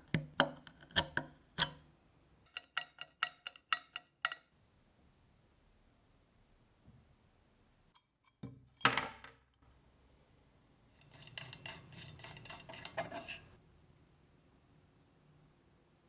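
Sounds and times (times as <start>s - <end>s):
metal parts clinking and scraping: 11.0s - 13.5s.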